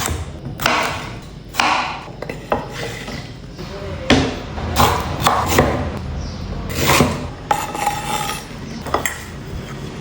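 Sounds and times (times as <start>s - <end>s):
scraping and rubbing: 6.7s - 10.0s.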